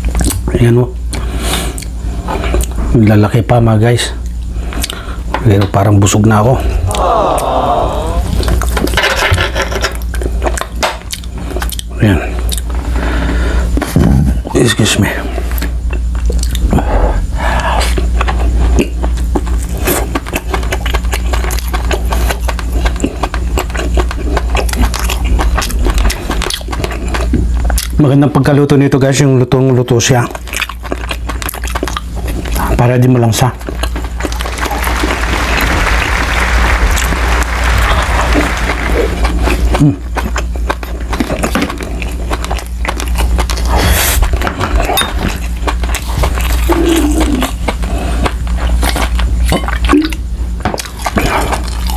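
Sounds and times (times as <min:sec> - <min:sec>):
chewing with mouth clicks: 0:00.0 - 0:00.5, 0:01.1 - 0:02.9, 0:04.2 - 0:05.0, 0:09.6 - 0:13.0, 0:15.3 - 0:16.9, 0:17.6 - 0:28.0, 0:30.1 - 0:51.9
steady low hum: 0:00.0 - 0:51.9.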